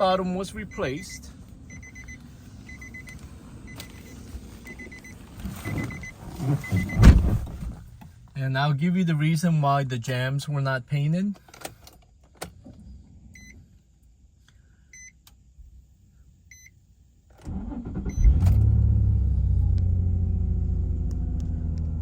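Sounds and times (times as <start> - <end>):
warning chime beeps: 0.6 - 4.1, 4.7 - 7.1.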